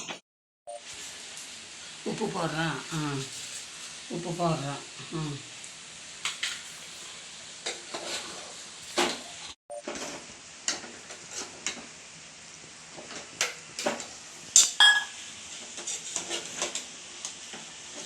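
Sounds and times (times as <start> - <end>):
food sizzling: 0.0 - 18.0
metallic clank ringing: 14.8 - 15.2.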